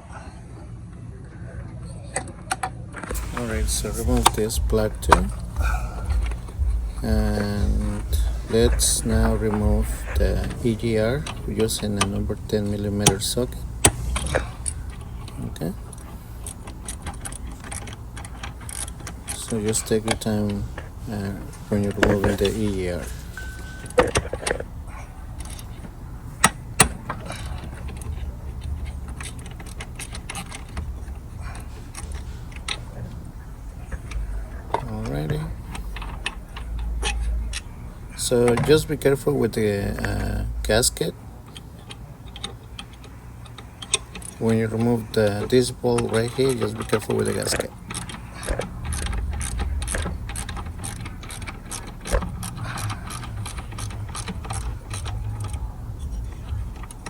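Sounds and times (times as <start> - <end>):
metal tools clinking: 3.1 - 57.0
ratchet wrench clicking: 41.5 - 57.0.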